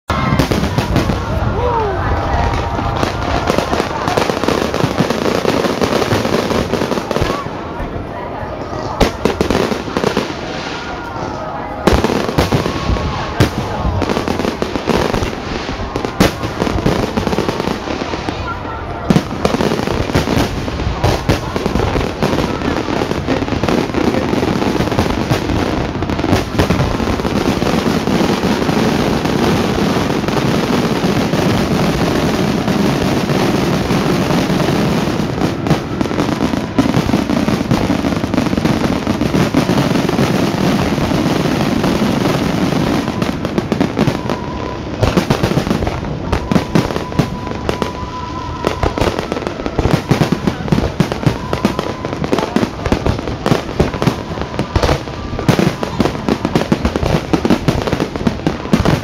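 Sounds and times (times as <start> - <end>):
fireworks bangs and crackling: 0.1 - 59.0.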